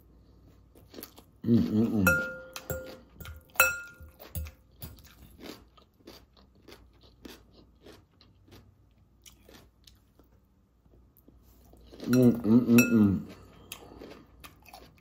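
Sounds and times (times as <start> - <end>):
crunchy chewing of salad: 0.0 - 15.0
metal fork clinking glass bowl: 2.0 - 4.5, 12.1 - 13.2.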